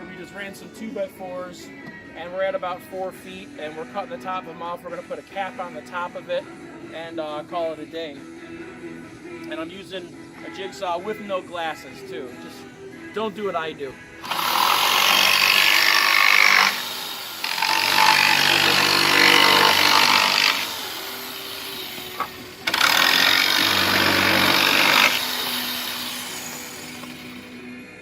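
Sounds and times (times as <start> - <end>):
jigsaw cutting wood: 14.2 - 27.7.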